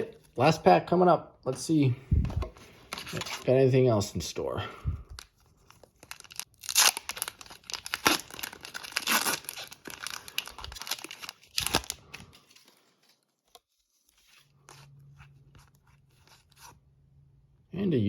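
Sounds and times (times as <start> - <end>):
card pack wrapper tearing: 5.1 - 12.7.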